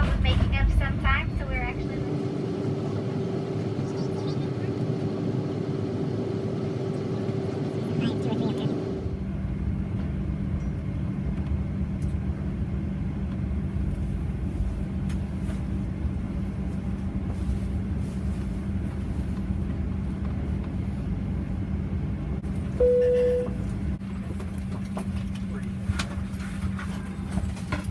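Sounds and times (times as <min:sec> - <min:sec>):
airplane cabin rumble: 0:00.0 - 0:27.9
loud tone: 0:22.8 - 0:23.6.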